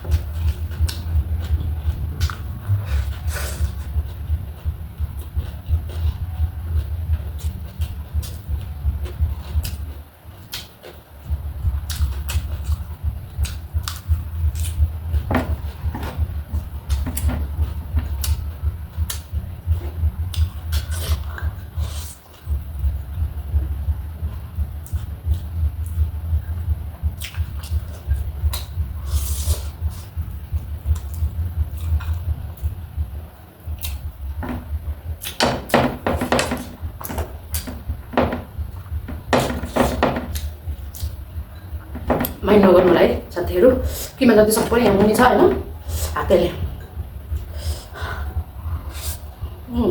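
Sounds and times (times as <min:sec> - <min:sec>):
crunchy chewing: 0:00.0 - 0:22.6
low hum: 0:00.0 - 0:49.9
dull uneven thumping: 0:12.9 - 0:20.6, 0:29.8 - 0:47.5.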